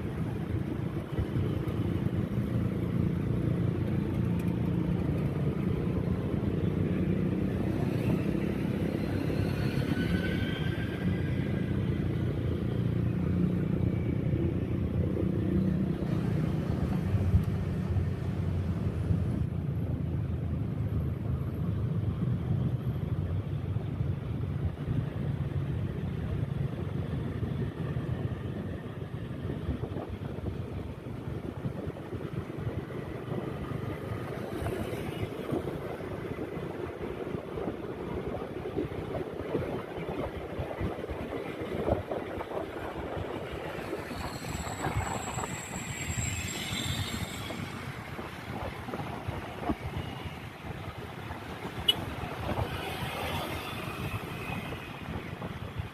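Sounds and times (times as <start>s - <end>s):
road and traffic noise: 0.0s - 55.9s
wind buffeting on microphone: 24.0s - 46.2s, 46.9s - 55.9s.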